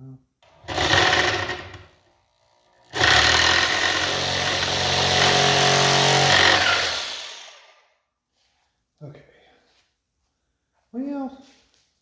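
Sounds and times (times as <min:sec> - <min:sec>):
power tool cutting metal: 0:00.6 - 0:01.9, 0:02.8 - 0:07.6.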